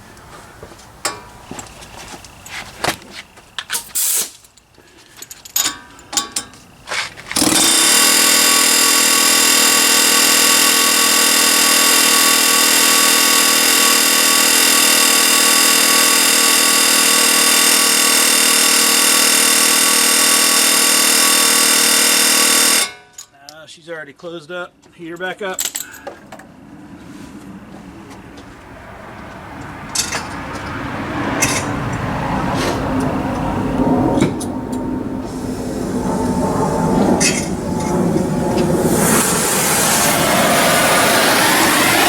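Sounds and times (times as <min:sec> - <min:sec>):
power tool running: 0:07.2 - 0:23.0, 0:35.2 - 0:42.0.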